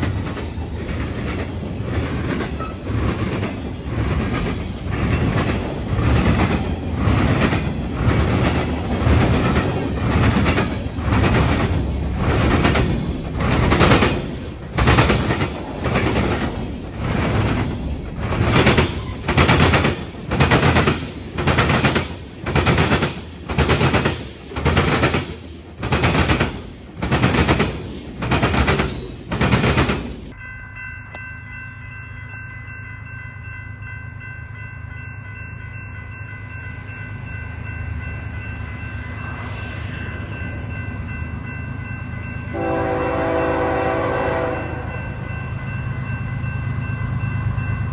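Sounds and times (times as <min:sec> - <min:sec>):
train wheels pounding rail joints: 0:00.0 - 0:30.4
low train rumble: 0:00.0 - 0:47.9
locomotive horn: 0:42.5 - 0:45.2.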